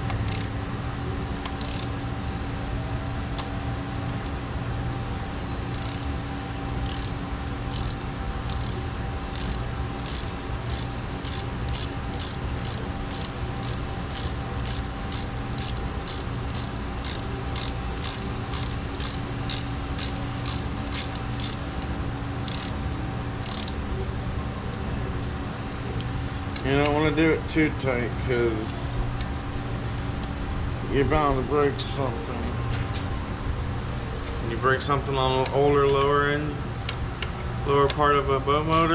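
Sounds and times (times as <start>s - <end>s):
ratchet wrench clicking: 0.0s - 0.5s, 1.4s - 1.9s, 5.7s - 6.1s, 6.8s - 21.6s, 22.4s - 22.8s, 23.4s - 23.8s.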